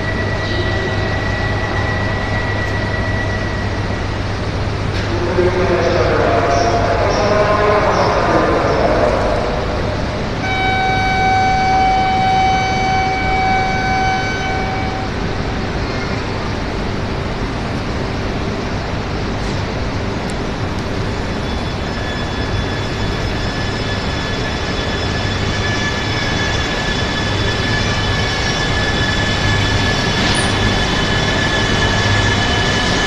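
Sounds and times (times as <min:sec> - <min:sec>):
train rumbling at platform: 0:00.0 - 0:33.0
high steady whine: 0:08.2 - 0:33.0
steady pitched tone: 0:09.9 - 0:16.4.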